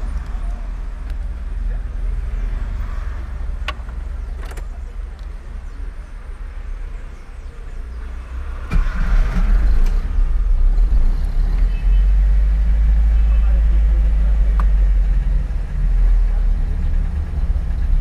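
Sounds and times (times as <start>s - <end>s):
car engine cranking and running: 8.4s - 11.8s, 12.5s - 18.0s.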